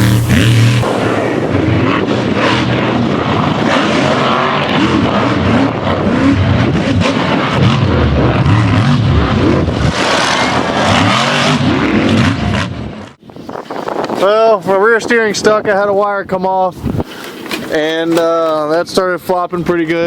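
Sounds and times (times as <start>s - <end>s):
monster truck engine revving: 0.0s - 13.1s.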